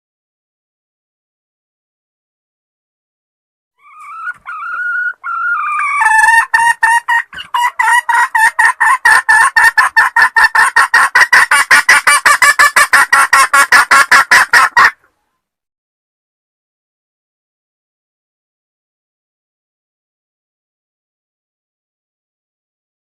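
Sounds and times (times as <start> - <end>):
hen calling and clucking: 3.8 - 15.4.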